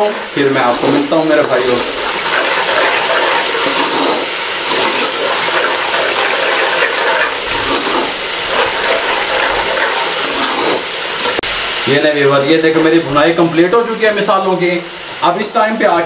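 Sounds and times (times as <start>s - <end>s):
spices sizzling in oil: 0.0s - 16.0s
metal ladle stirring: 0.6s - 11.4s.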